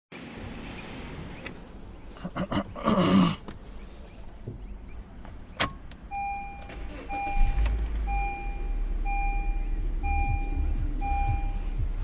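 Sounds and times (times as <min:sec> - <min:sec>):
car engine starting and running: 0:00.1 - 0:12.0
car warning chime beeping: 0:04.9 - 0:12.0.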